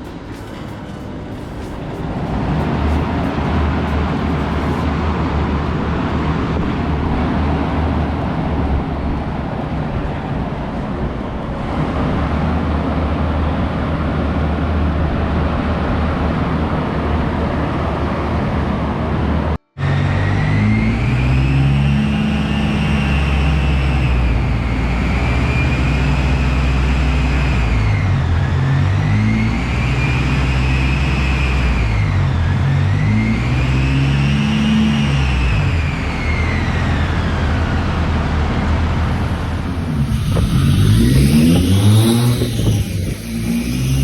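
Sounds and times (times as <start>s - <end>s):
race car engine revving: 0.0s - 8.8s, 19.8s - 44.0s
high whine: 0.0s - 9.2s, 19.8s - 44.0s.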